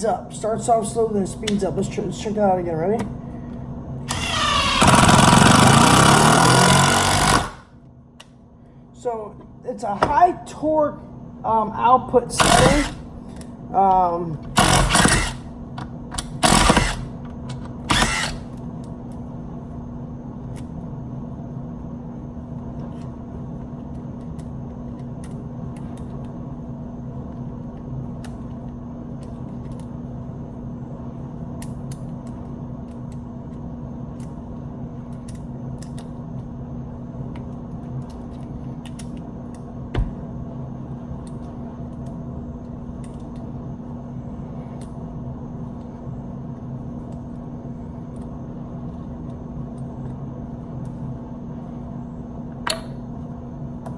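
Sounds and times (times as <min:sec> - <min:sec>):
low hum: 0:00.0 - 0:53.9
impact driver hammering: 0:04.1 - 0:07.6, 0:12.4 - 0:13.0, 0:14.5 - 0:15.4, 0:16.4 - 0:17.1, 0:17.9 - 0:18.4
short thump: 0:39.9 - 0:40.2.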